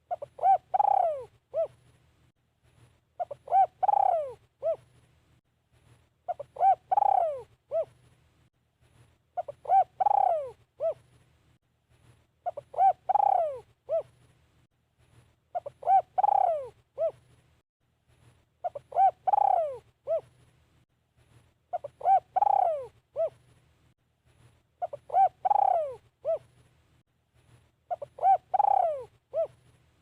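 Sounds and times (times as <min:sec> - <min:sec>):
dove cooing: 0:00.0 - 0:01.8, 0:03.2 - 0:04.9, 0:06.3 - 0:08.0, 0:09.4 - 0:11.1, 0:12.4 - 0:14.2, 0:15.5 - 0:17.2, 0:18.6 - 0:20.3, 0:21.7 - 0:23.4, 0:24.8 - 0:26.5, 0:27.9 - 0:29.7.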